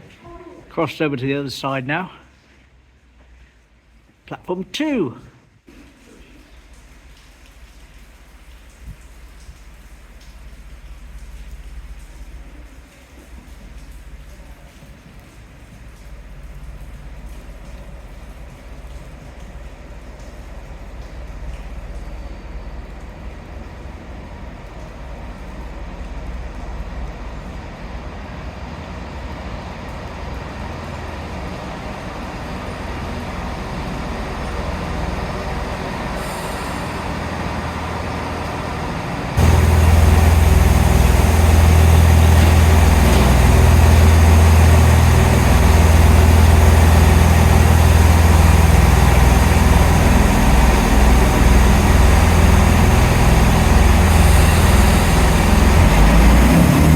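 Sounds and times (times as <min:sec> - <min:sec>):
diesel train engines rumbling: 0:16.2 - 0:56.9.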